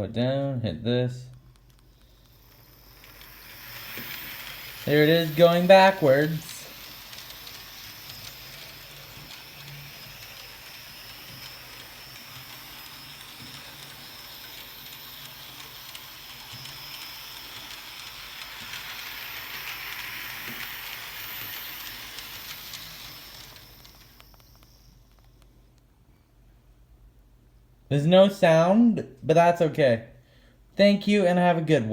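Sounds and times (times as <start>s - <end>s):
thin high whine: 1.0s - 26.4s
model train whirring on track: 1.2s - 25.4s.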